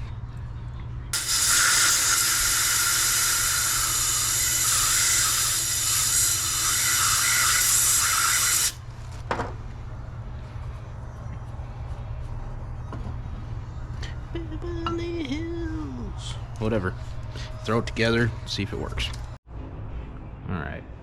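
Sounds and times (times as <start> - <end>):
pressurized spray hissing: 1.2 - 8.8.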